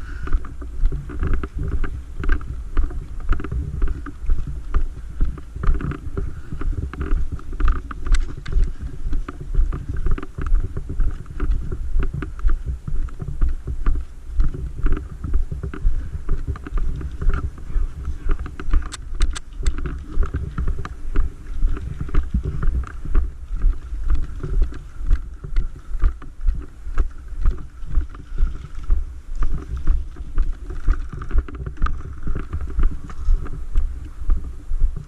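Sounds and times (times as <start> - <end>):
walking footsteps: 0.0 - 35.0
gear rattling and rubbing: 0.5 - 34.6.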